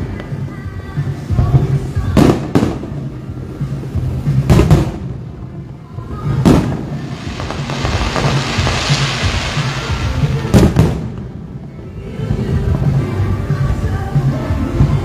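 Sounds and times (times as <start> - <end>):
music with low bass: 0.0 - 15.0
fireworks bangs: 1.3 - 3.0, 4.4 - 5.4, 6.3 - 11.8.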